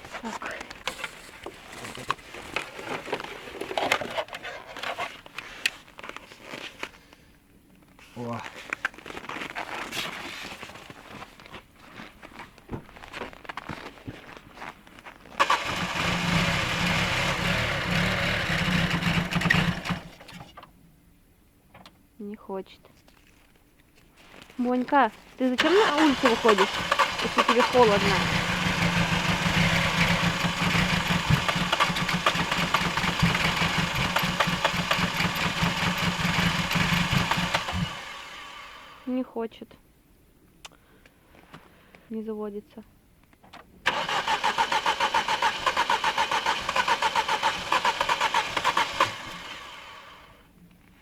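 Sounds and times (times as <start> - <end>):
car engine cranking: 15.4 - 20.6, 25.5 - 39.0, 43.8 - 50.3.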